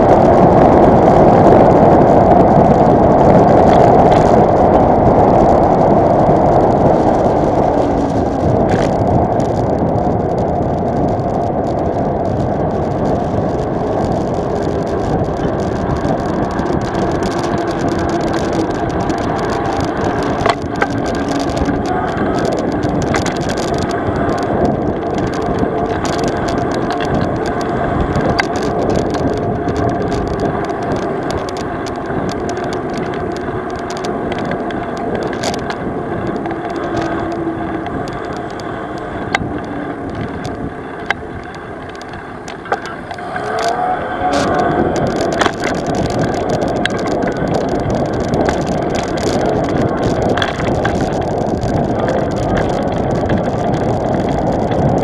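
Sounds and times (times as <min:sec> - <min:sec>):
vehicle engine running: 0:00.0 - 0:55.0
knocks and rattles: 0:14.5 - 0:38.6
engine revving: 0:42.7 - 0:45.8.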